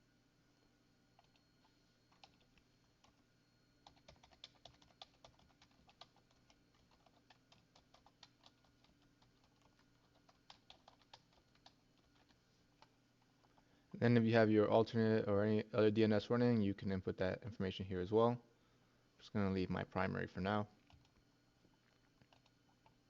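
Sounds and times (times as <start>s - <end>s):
computer keyboard typing: 1.2s - 3.2s, 3.8s - 13.7s, 20.8s - 21.2s, 21.8s - 23.0s.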